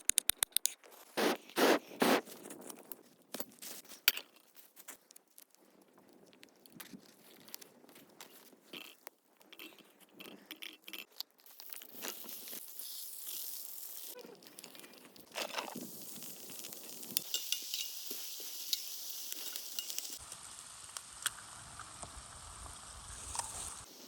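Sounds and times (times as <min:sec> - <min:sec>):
food being handled: 0:00.8 - 0:20.2
food sizzling in a hot pan: 0:12.0 - 0:14.2, 0:15.8 - 0:24.0.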